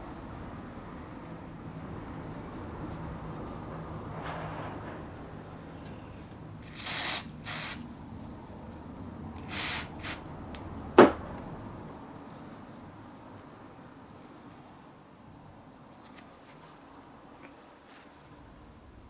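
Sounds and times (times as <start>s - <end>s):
aerosol can spraying: 6.6s - 7.8s, 9.4s - 10.3s.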